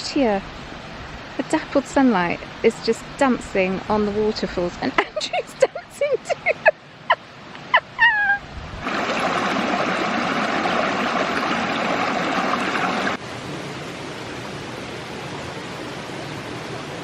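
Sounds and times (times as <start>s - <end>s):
water rushing over rocks: 7.4s - 17.0s.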